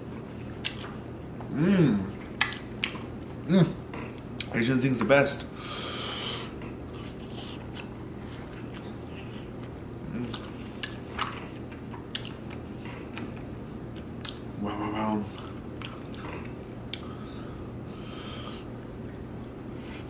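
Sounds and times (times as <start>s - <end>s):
chewing and biting: 0.6s - 1.1s, 2.3s - 3.4s, 6.9s - 14.4s, 15.4s - 17.2s
brief humming vocal sound: 1.5s - 2.1s, 3.5s - 3.8s
wet mouth smacks and clicks: 2.4s - 3.1s.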